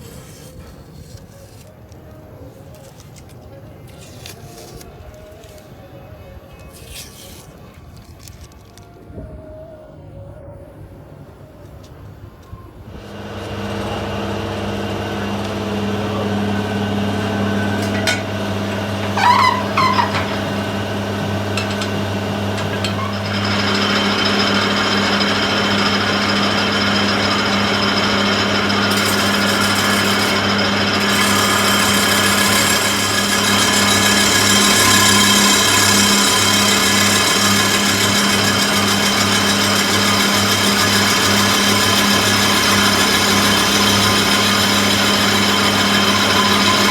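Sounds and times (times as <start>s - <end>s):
electric power tool motor running: 12.9s - 46.9s
brief wavering squeal: 17.0s - 38.6s, 39.6s - 46.9s.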